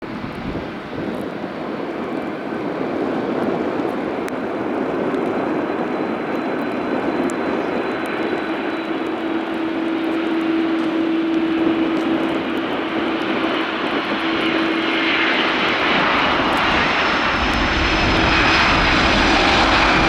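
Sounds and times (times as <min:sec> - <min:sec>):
jet engine roar: 0:00.0 - 0:20.0
faint high whine: 0:06.4 - 0:20.0.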